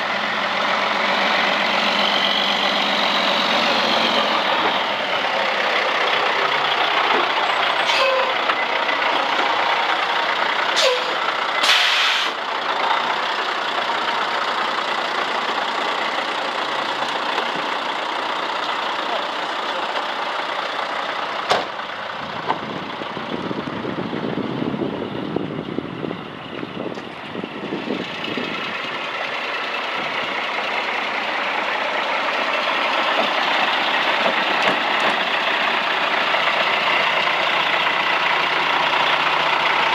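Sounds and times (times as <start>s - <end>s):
diesel truck engine running: 0.0s - 39.9s
short hiss: 11.6s - 12.4s.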